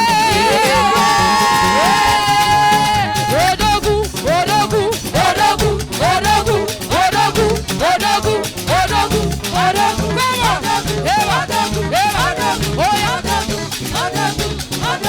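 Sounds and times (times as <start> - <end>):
church praise music with choir: 0.0 - 15.0.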